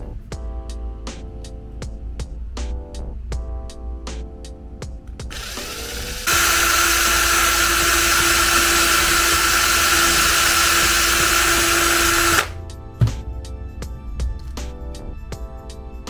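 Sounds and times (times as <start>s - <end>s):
small electric motor whining: 5.3s - 12.6s.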